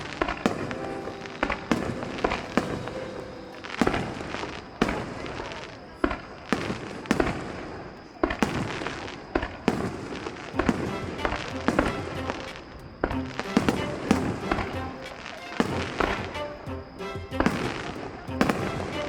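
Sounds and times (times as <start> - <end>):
show music: 0.0 - 4.6, 10.6 - 19.0
fireworks exploding and crackling: 0.0 - 19.0.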